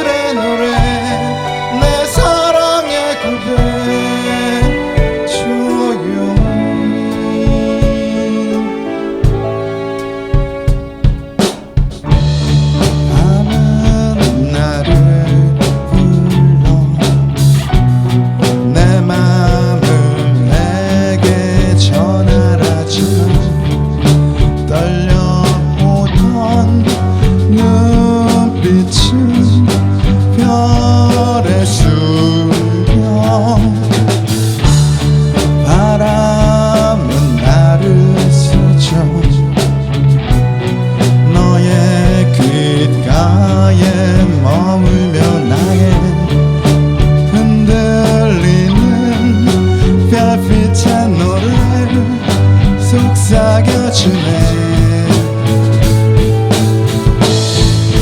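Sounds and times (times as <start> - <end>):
bass guitar long low notes: 0.0 - 58.0
drum kit: 0.0 - 58.0
electric guitar bending notes: 0.0 - 58.0.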